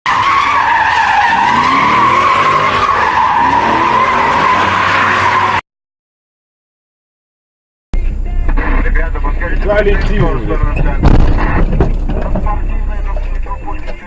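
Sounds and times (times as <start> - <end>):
car tyres squealing: 0.1 - 5.6, 8.6 - 14.0
car engine revving: 0.2 - 5.6.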